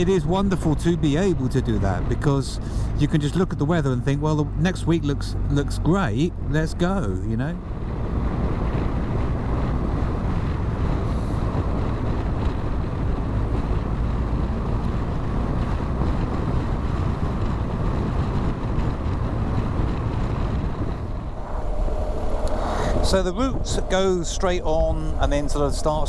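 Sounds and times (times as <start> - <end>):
motorcycle engine cruising: 7.6 - 26.0
wind on microphone: 7.6 - 26.0.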